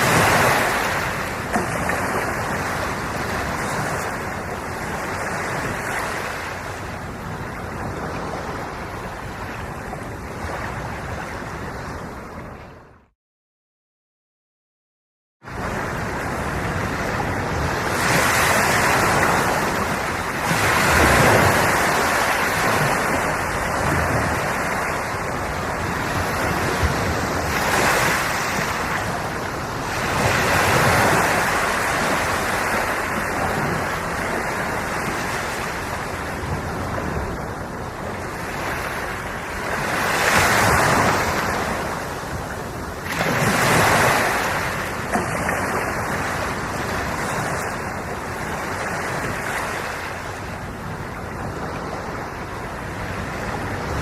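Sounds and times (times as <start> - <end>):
ocean waves breaking: 0.0 - 13.0, 15.5 - 54.0.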